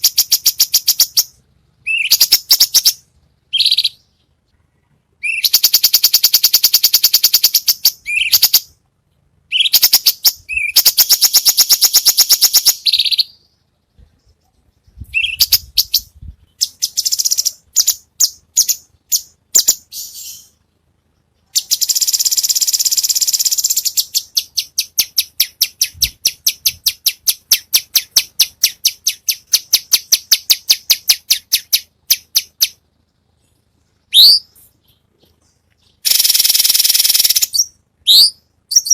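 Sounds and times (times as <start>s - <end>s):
songbird trilling: 0.0s - 4.2s, 5.2s - 8.7s, 9.5s - 13.5s, 15.0s - 20.6s, 21.5s - 32.8s, 34.1s - 35.0s, 35.8s - 38.9s.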